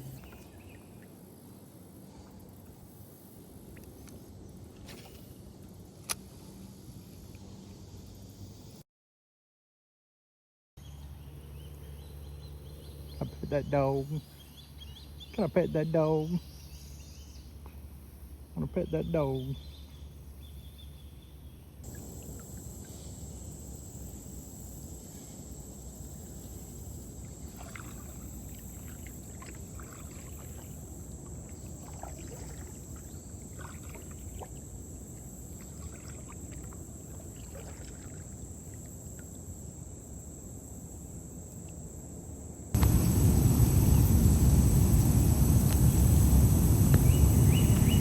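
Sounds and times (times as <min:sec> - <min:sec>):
paddle splashes and drips: 0:21.8 - 0:23.2, 0:27.0 - 0:39.5
loud low rush: 0:42.8 - 0:48.0
steady low rumble: 0:42.8 - 0:48.0.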